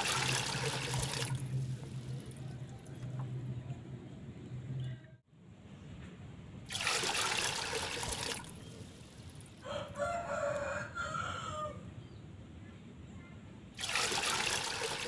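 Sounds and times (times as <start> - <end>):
running water rushing: 0.0 - 2.6, 6.7 - 9.7, 13.8 - 15.0
rooster crowing: 9.6 - 11.9.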